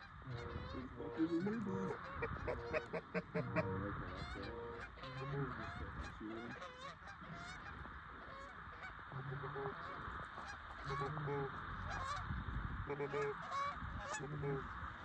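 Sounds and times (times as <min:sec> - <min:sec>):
geese honking and clucking: 0:00.0 - 0:15.0.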